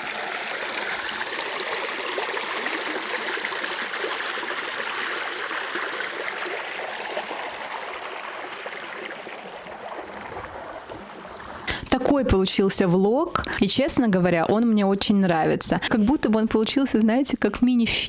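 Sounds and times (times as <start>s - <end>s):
running water rushing: 0.0s - 12.6s.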